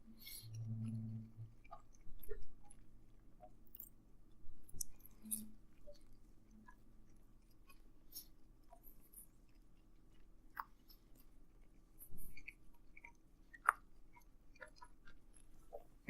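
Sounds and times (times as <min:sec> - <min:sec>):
person chewing: 0:00.2 - 0:16.0
small mouth clicks: 0:04.7 - 0:09.4, 0:12.1 - 0:15.9.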